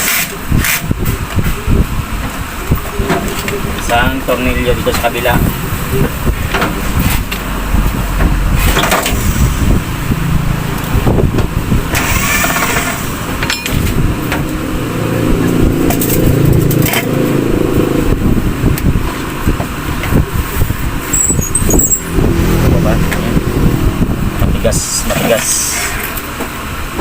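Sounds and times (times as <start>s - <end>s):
clicks and knocks of metal tools: 12.4s - 13.9s.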